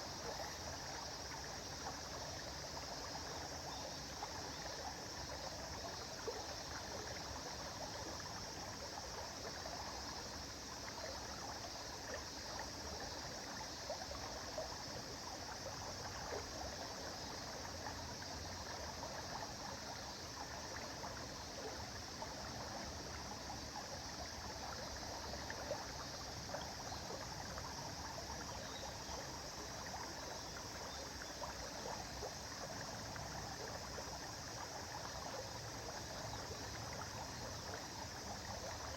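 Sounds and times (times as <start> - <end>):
river water burbling: 0.0 - 38.9.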